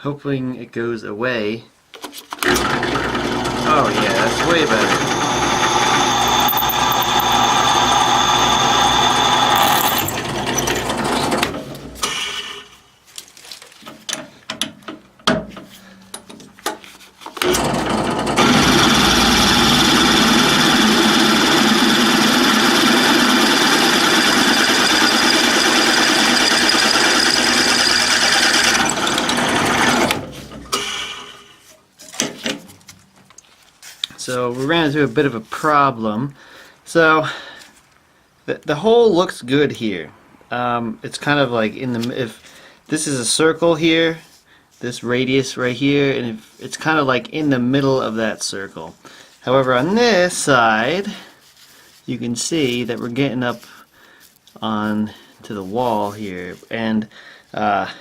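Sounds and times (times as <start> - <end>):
drill press drilling metal: 2.4 - 12.6, 17.4 - 31.5.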